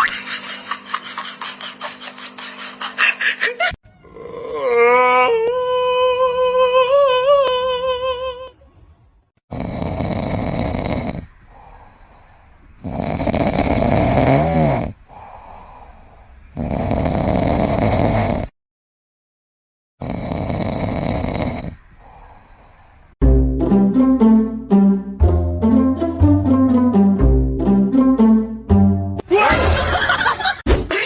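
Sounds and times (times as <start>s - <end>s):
pet snoring loudly: 9.5s - 11.3s, 12.8s - 15.0s, 16.5s - 18.5s, 20.0s - 21.8s.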